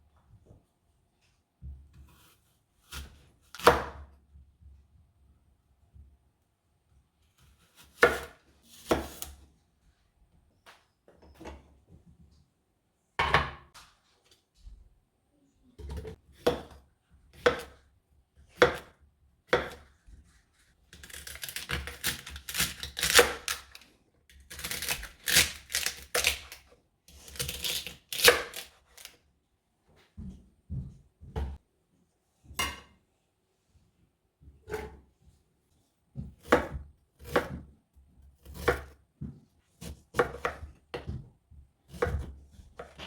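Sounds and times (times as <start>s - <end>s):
knife chopping on cutting board: 1.9s - 4.0s, 7.8s - 9.3s, 15.8s - 17.8s, 18.6s - 19.9s, 21.0s - 23.7s, 27.3s - 29.1s, 36.2s - 37.7s, 38.4s - 41.3s, 41.9s - 43.0s.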